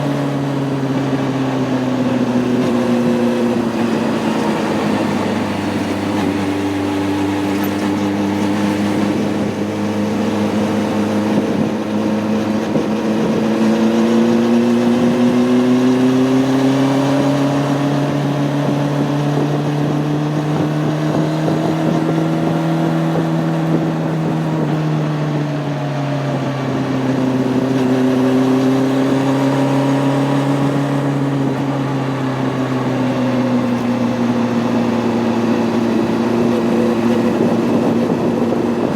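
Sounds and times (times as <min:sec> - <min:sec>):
motorcycle engine running: 0:00.0 - 0:38.9
wind noise: 0:02.1 - 0:15.8, 0:17.1 - 0:28.4, 0:33.4 - 0:38.9.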